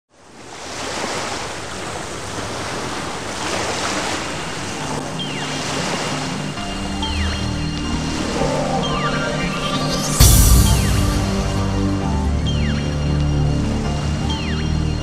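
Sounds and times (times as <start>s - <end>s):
sea waves washing in: 0.2s - 15.0s
music with low held notes: 6.5s - 15.0s
falling electronic sweep: 6.8s - 12.7s.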